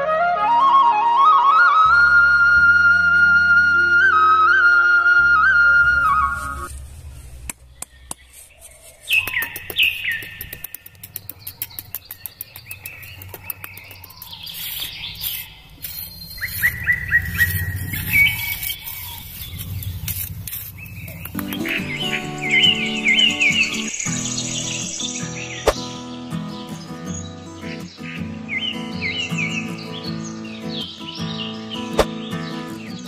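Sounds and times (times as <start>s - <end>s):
birds chirping: 7.0s - 33.0s
bird ticking runs: 9.1s - 20.1s.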